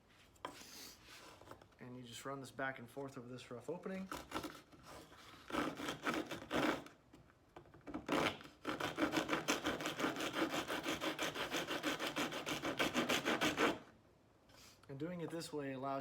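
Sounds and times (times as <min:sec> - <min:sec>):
wood rasp scraping wood: 0:04.1 - 0:06.9, 0:08.0 - 0:13.8.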